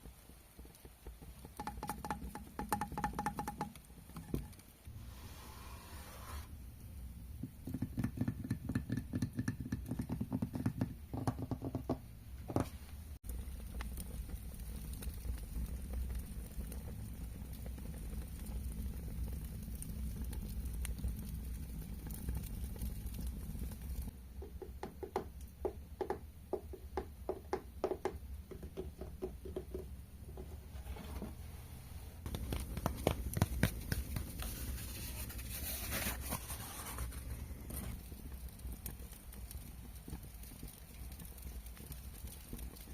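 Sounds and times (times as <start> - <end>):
rapid tapping on hard objects: 0.3 - 4.6, 7.4 - 20.5, 21.2 - 30.6, 32.2 - 35.5.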